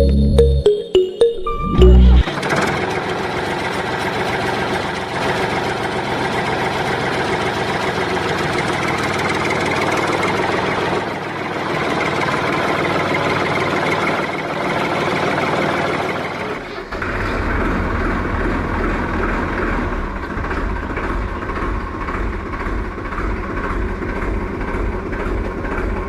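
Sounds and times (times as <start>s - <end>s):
engine idling: 2.1s - 26.0s.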